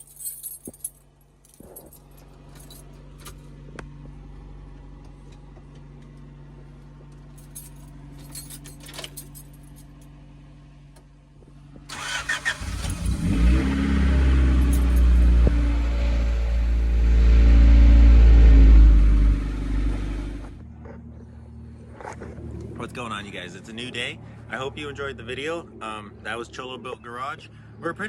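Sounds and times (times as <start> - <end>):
car engine starting and running: 2.0 - 28.0
steady low hum: 14.1 - 28.0.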